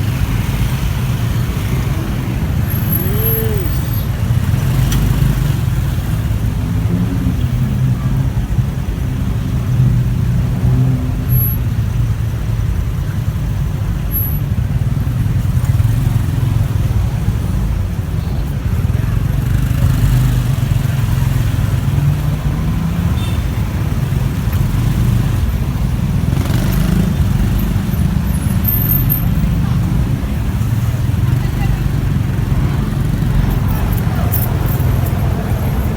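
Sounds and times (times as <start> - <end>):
surrounding traffic: 0.0 - 35.9
motorcycle engine running: 12.0 - 35.9.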